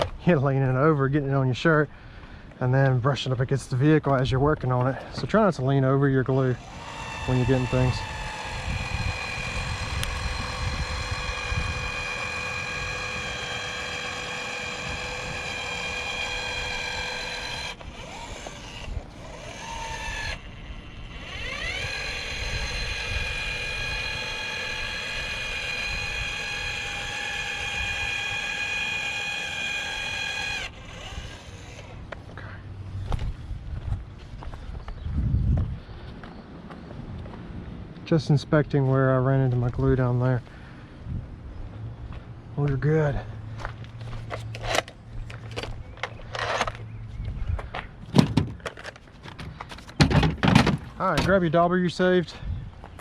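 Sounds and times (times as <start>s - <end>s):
urethane gun motor whining: 4.8s - 32.4s, 43.6s - 47.7s.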